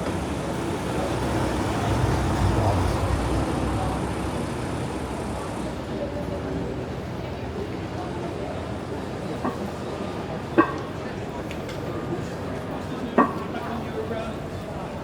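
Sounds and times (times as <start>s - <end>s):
vehicles passing on road: 0.0s - 7.2s.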